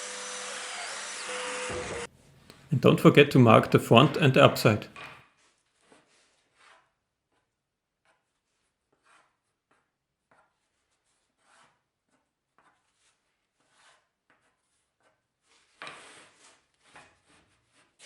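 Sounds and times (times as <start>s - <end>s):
pencil scrape: 5.4s - 18.0s
pencil scratching on wood: 5.4s - 18.0s.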